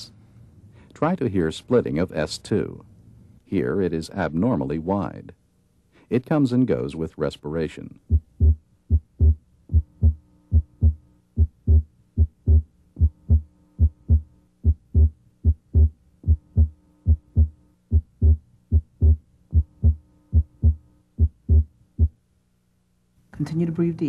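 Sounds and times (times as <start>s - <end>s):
heartbeat through stethoscope: 8.0s - 22.2s.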